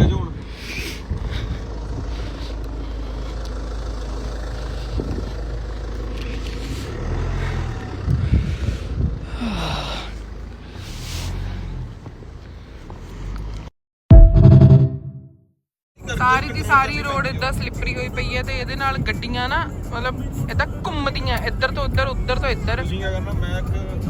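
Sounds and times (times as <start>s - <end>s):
car engine and tyres rumbling: 0.0s - 13.8s, 16.0s - 24.0s
low thumps: 14.1s - 15.3s.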